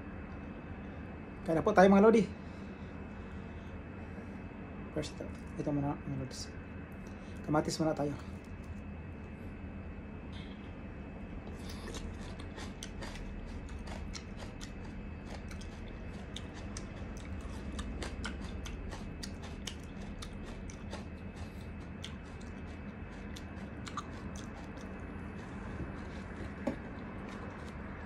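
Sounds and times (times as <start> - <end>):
faint steady hum: 0.0 - 28.0
person chewing tomato: 11.4 - 28.0
wet mouth clicks and smacks: 23.2 - 25.0.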